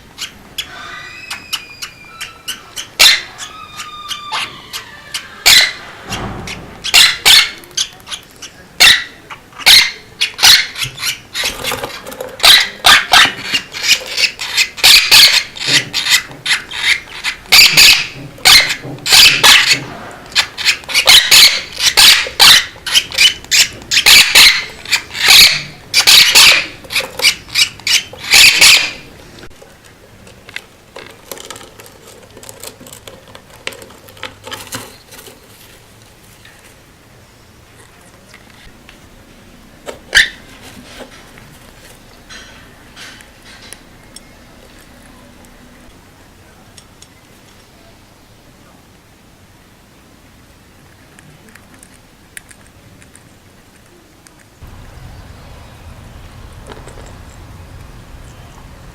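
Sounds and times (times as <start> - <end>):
small birds chirping: 20.4 - 29.5, 53.9 - 58.9.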